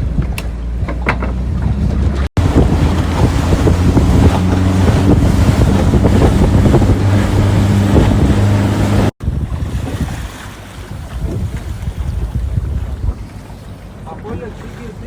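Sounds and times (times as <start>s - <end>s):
boat motor running: 0.0s - 9.5s
wind buffeting microphone: 0.0s - 13.6s
water noise: 0.0s - 15.0s.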